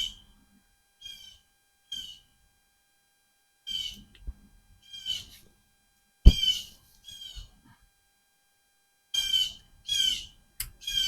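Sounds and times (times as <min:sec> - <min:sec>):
sharp knock: 0:06.3 - 0:06.5
short high-pitched animal calls: 0:06.3 - 0:07.5.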